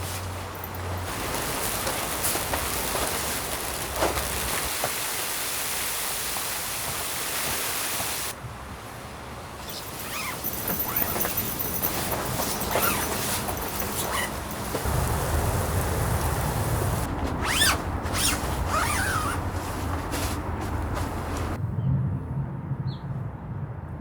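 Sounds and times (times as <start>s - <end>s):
strong wind blowing: 14.4s - 22.3s.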